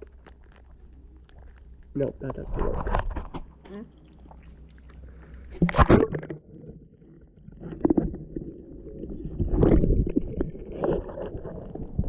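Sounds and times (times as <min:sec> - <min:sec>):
camera handling rumble and knocks: 0:02.3 - 0:03.5.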